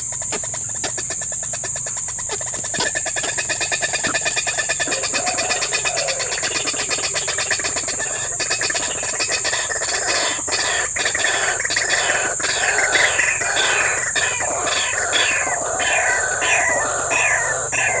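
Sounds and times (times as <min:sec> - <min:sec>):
high insect trill: 0:00.0 - 0:18.0
quick falling calls: 0:02.3 - 0:18.0.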